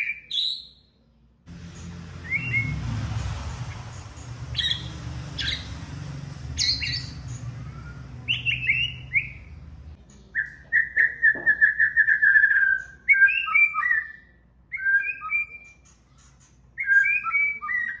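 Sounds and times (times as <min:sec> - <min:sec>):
bird singing whistled phrases: 0:00.0 - 0:00.9, 0:02.2 - 0:02.8, 0:04.5 - 0:05.8, 0:06.6 - 0:09.5, 0:10.3 - 0:16.0, 0:16.8 - 0:18.0
bird sharp chips: 0:01.6 - 0:09.6.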